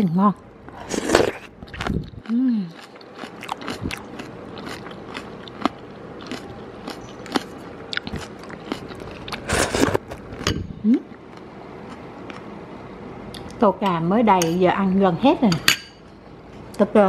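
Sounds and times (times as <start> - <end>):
crunchy chewing: 0.8 - 10.5.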